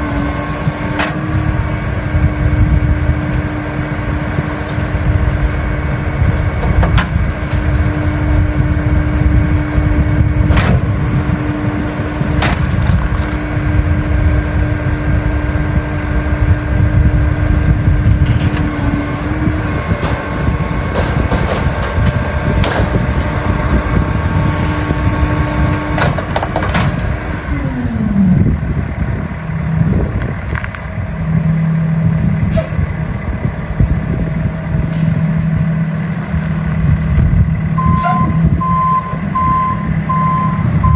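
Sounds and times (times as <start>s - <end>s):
garbage truck engine revving: 0.0s - 40.9s
trash cracking and crushing: 10.4s - 14.2s, 18.2s - 27.5s.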